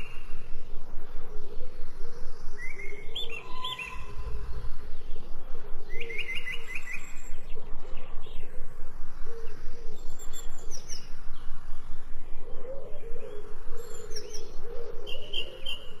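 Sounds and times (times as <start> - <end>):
songbirds chirping: 0.0 - 16.0
lower wavering bird call: 2.6 - 4.5.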